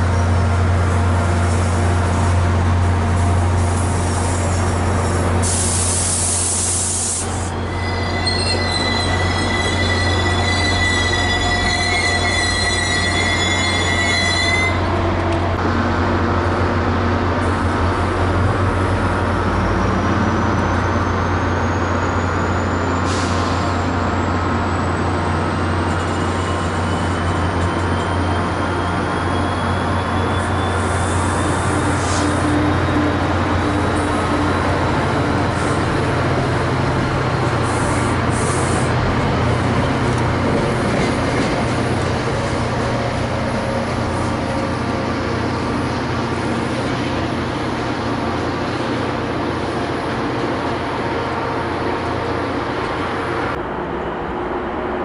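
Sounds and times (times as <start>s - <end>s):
train wheels rumbling on rail: 0.0s - 55.0s
high-pitched wheel squeal: 7.2s - 15.0s, 25.8s - 34.8s.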